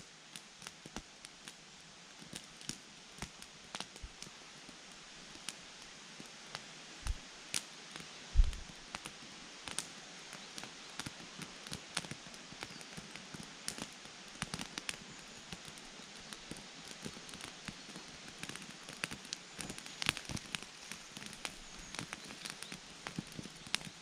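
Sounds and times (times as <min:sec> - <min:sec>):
campfire crackling: 0:00.0 - 0:24.0
faint steady hiss: 0:00.0 - 0:24.0
low thump: 0:08.4 - 0:08.7.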